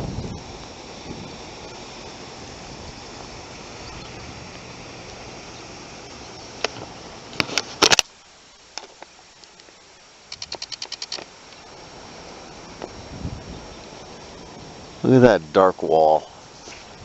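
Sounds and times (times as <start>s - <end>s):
wind noise on microphone: 0.0s - 5.4s, 10.3s - 11.2s, 12.7s - 14.9s
sharp clicks: 8.7s - 11.7s.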